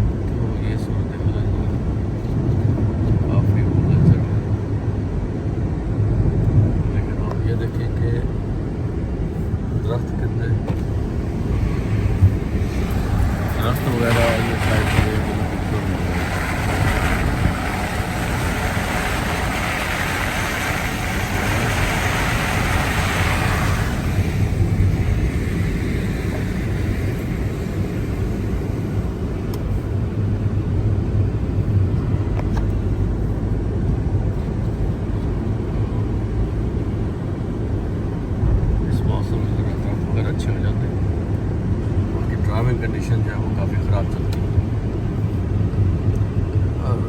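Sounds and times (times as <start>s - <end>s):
car engine and road rumble: 0.0s - 47.0s
high road hiss: 10.2s - 31.6s.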